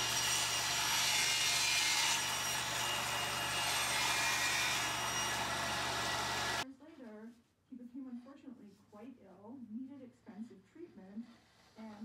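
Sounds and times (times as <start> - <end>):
saw blade cutting wood: 0.0 - 6.6
table saw motor hum: 0.0 - 6.6.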